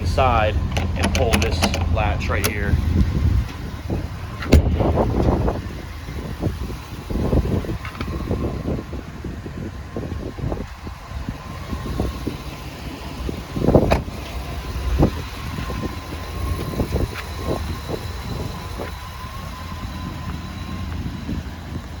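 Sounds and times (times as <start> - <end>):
low rumble: 0.0 - 22.0
door latch clicks and knocks: 0.7 - 2.8
door bang: 4.4 - 5.3.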